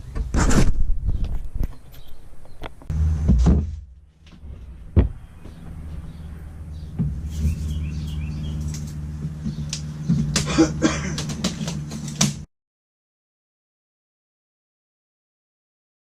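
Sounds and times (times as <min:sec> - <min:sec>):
low motor hum: 0:02.5 - 0:12.5.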